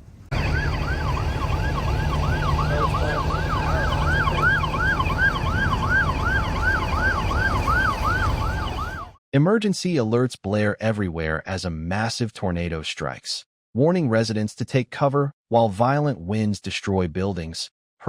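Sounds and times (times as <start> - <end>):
steady low rumble: 0.0 - 8.7
electronic siren yelping: 0.3 - 9.2.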